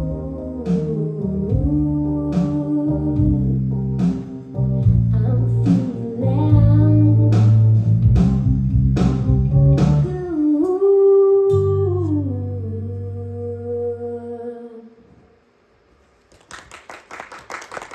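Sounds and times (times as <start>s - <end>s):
band music with guitar and bass: 0.0s - 10.2s.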